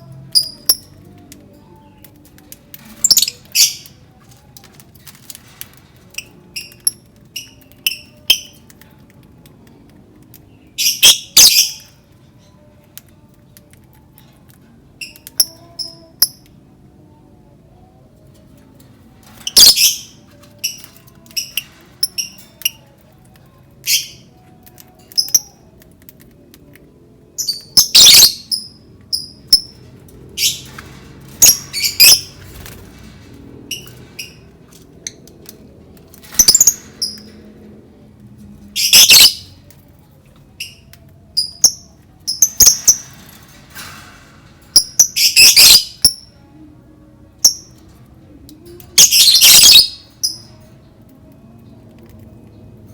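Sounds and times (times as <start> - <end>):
faint low hum: 0.0 - 52.9
lovebird chirps and squawks: 36.3 - 37.3, 49.0 - 50.4.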